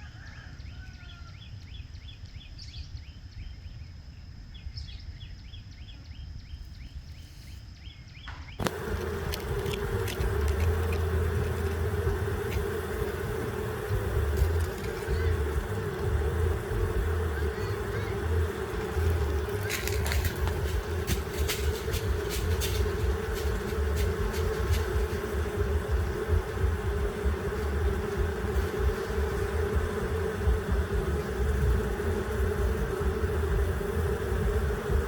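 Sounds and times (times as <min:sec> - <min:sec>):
bee buzzing: 0:08.6 - 0:35.0
low fluctuating rumble: 0:08.7 - 0:35.0.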